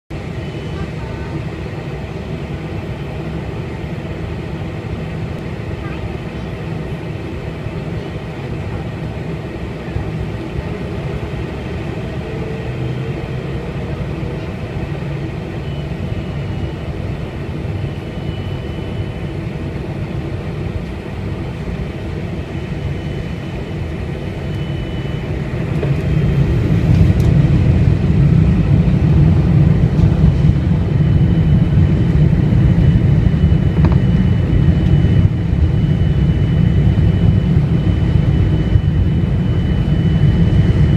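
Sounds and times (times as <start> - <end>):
jet engines droning: 0.1 - 40.9.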